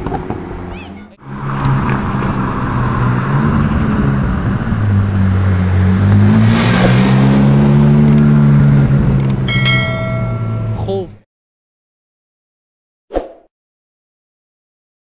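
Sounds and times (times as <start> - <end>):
sports car engine driving past: 0.0 - 10.9.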